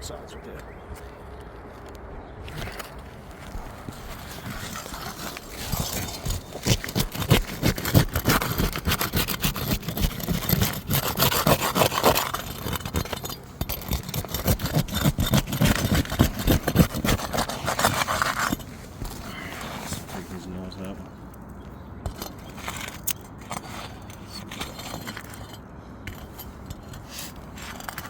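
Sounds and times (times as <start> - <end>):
pry bar scraping shingles: 2.4 - 20.3, 22.0 - 28.0.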